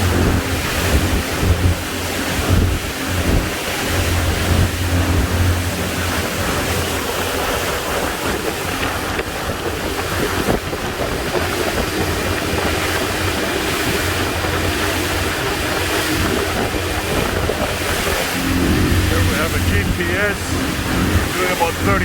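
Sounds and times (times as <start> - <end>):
diesel boat engines humming: 0.0 - 22.0
water rushing past hull: 0.0 - 22.0
wind noise on microphone: 0.0 - 22.0.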